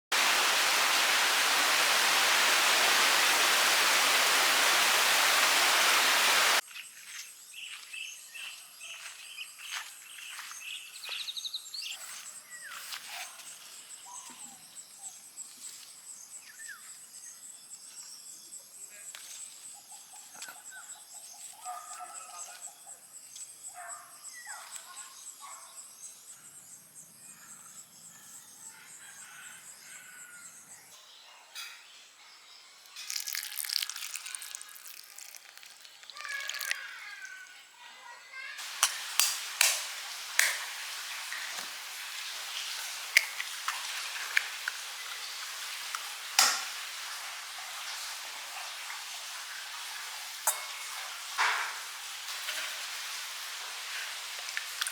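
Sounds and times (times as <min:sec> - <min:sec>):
loud steady hiss: 0:00.0 - 0:06.6, 0:38.6 - 0:48.5
birds chirping: 0:00.0 - 0:15.8, 0:33.7 - 0:47.6
insects droning: 0:00.2 - 0:06.6, 0:38.6 - 0:48.8.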